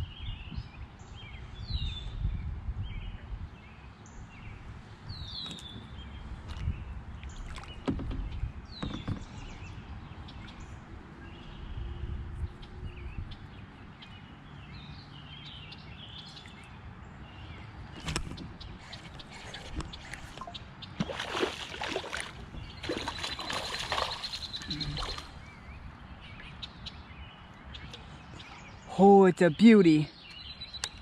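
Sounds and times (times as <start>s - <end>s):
low outdoor background: 0.0s - 31.0s
water splashing and sloshing: 5.4s - 11.2s, 17.7s - 26.6s.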